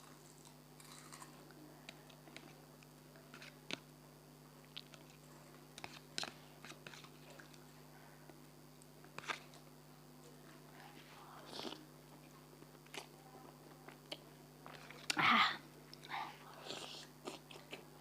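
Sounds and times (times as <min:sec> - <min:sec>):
quiet chewing: 0:00.0 - 0:03.8, 0:04.6 - 0:18.0
faint steady hum: 0:00.0 - 0:18.0
crunchy bites: 0:00.4 - 0:01.4.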